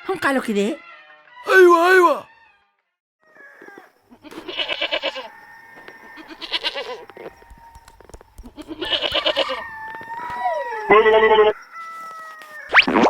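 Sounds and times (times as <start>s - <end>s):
goat bleating: 3.8s - 5.3s, 6.1s - 11.6s.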